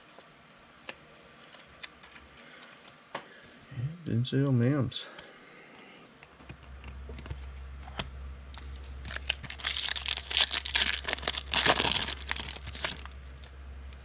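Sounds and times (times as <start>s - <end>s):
wrapper tearing and crinkling: 8.7s - 13.2s.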